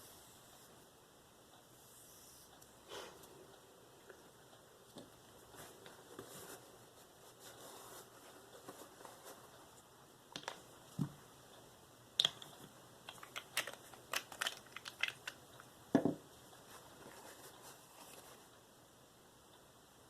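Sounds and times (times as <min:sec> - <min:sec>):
dull knocks on bench: 0:16.0 - 0:16.2.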